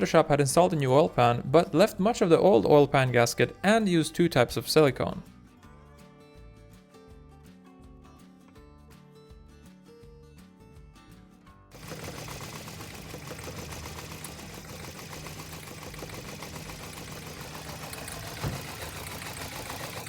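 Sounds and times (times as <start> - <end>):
small engine humming and rattling: 11.8 - 20.0
short thump: 18.4 - 18.9.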